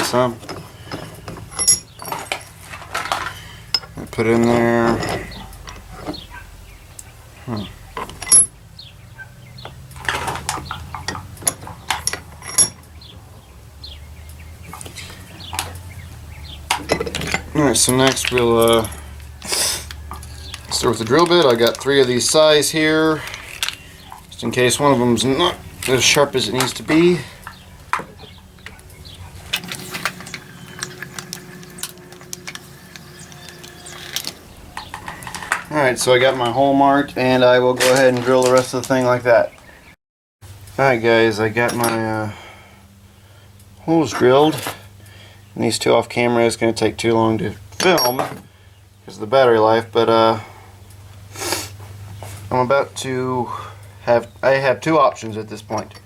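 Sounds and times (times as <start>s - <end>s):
metallic knocks and clinks: 0.5s - 4.1s, 8.0s - 8.6s, 10.0s - 12.8s, 16.7s - 21.9s, 27.4s - 35.7s, 47.8s - 48.4s
hand drill gears clicking: 16.7s - 22.4s, 23.0s - 24.3s, 28.6s - 35.7s.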